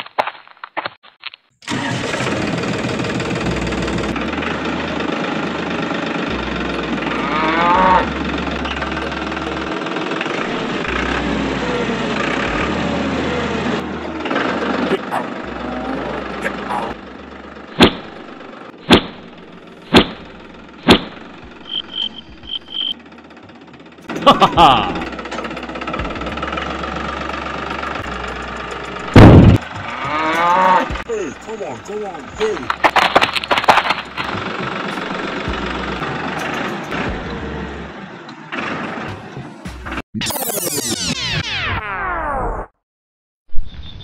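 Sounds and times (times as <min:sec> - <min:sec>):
low steady engine hum: 0:01.7 - 0:39.6
sharp hits: 0:17.7 - 0:23.0, 0:27.9 - 0:37.3.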